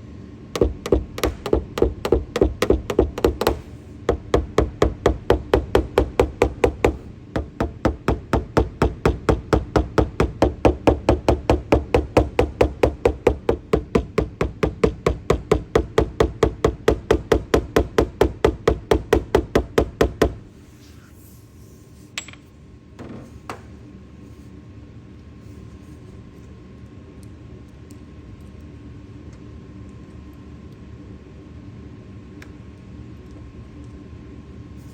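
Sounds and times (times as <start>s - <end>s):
hammer tapping sheet metal: 0.6s - 20.4s.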